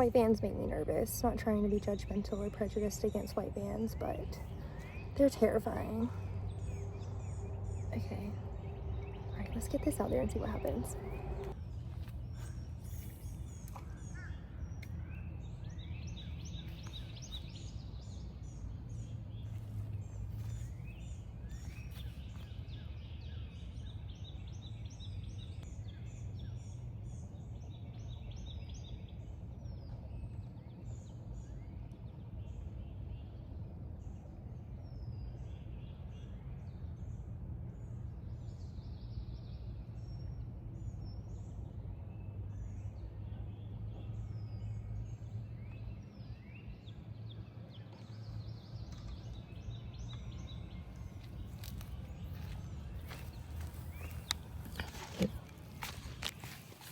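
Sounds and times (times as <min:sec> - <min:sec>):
birds chirping: 0:00.0 - 0:29.2, 0:42.6 - 0:56.9
low rumble: 0:01.7 - 0:13.6.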